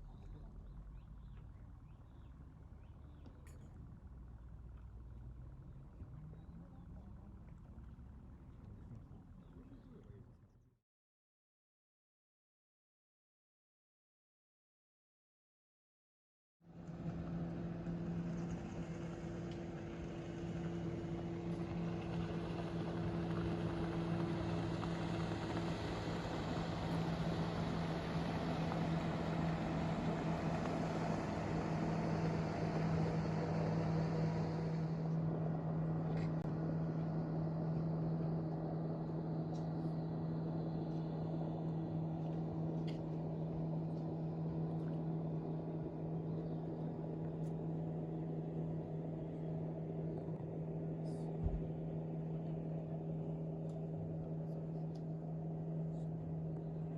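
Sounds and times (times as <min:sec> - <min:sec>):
engine humming: 0:16.7 - 0:56.9.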